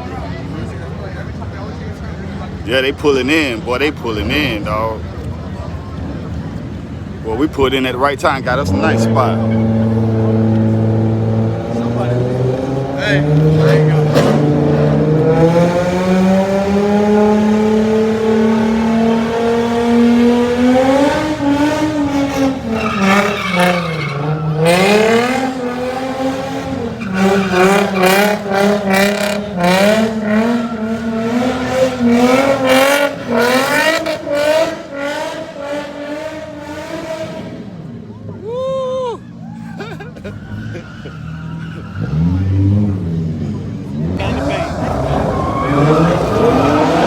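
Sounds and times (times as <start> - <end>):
tires squealing: 0.0 - 47.0
car engine revving high: 8.4 - 38.1, 41.2 - 47.0.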